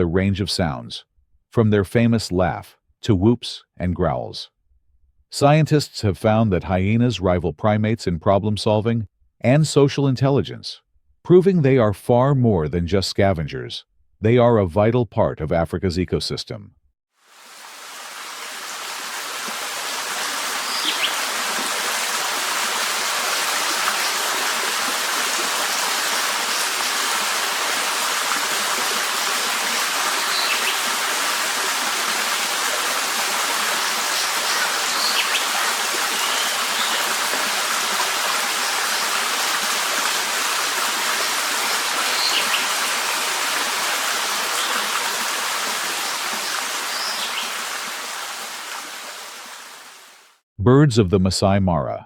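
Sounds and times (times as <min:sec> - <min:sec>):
running water rushing: 0:17.2 - 0:50.4.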